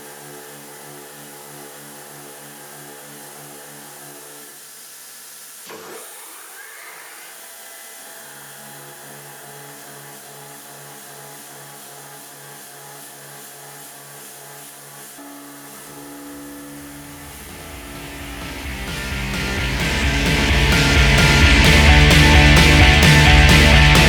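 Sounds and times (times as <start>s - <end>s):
milling machine whine and hum: 0.0s - 24.0s.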